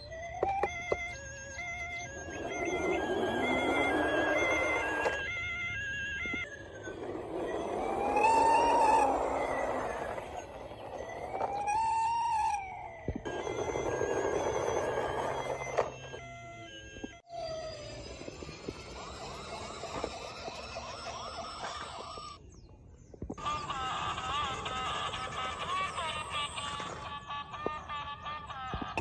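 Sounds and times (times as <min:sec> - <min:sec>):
siren-like wails: 0:00.0 - 0:22.4.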